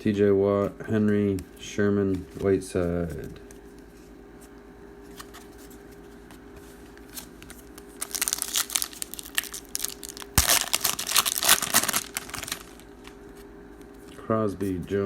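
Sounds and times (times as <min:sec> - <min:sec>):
plastic wrapper tearing and crinkling: 0:07.4 - 0:13.2.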